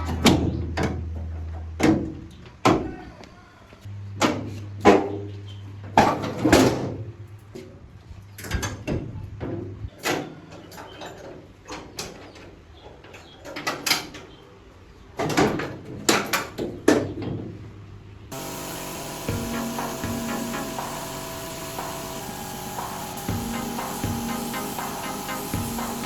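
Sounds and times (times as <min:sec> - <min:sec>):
low hum: 0:18.3 - 0:26.0
parts knocking and clanking: 0:18.3 - 0:26.0.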